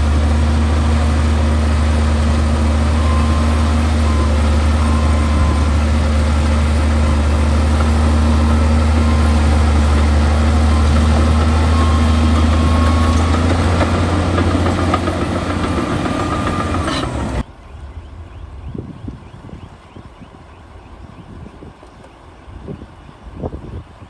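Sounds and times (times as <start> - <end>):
heavy diesel engine humming: 0.0 - 24.0.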